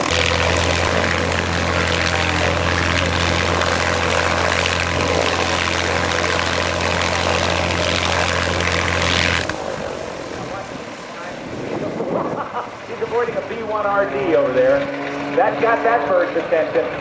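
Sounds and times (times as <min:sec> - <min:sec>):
propeller airplane engine drone: 0:00.0 - 0:17.0.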